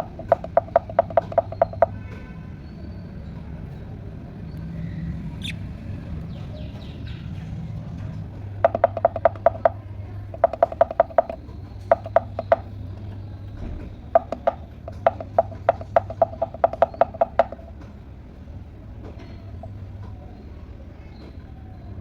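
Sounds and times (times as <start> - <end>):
bird beak tapping hard object: 0.0 - 2.1, 8.6 - 12.8, 14.1 - 17.8, 19.2 - 19.8.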